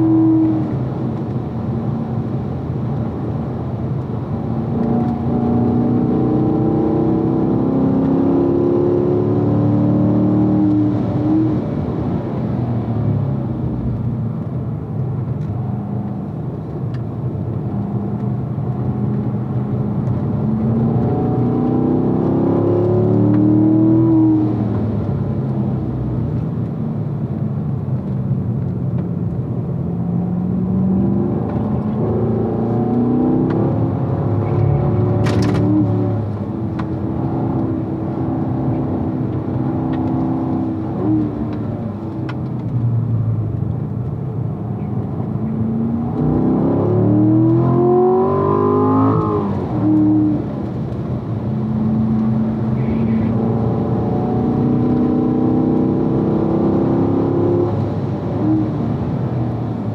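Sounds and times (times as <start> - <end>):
car engine revving: 4.6 - 11.9, 17.6 - 25.4, 29.6 - 59.9.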